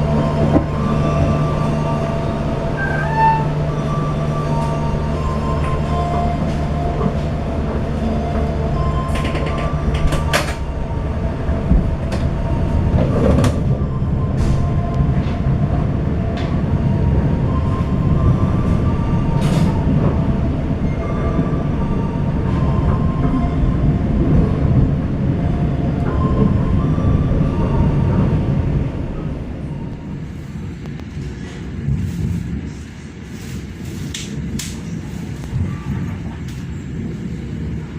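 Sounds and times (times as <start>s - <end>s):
train wheels rumbling on rail: 0.0s - 37.9s.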